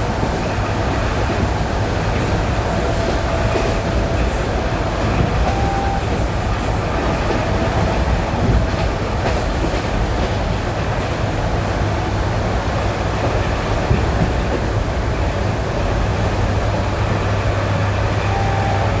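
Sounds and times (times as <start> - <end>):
wheels clacking over rail joints: 0.0 - 12.1
train wheels rumbling: 0.0 - 19.0.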